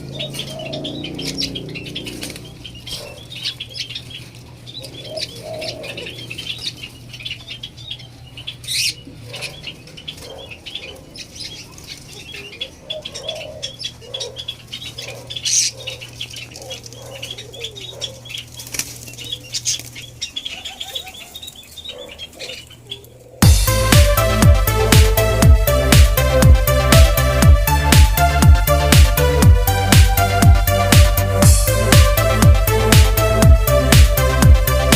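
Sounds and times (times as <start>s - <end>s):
doves fluttering wings: 0.0s - 34.9s
rapid high chirping: 0.0s - 34.9s.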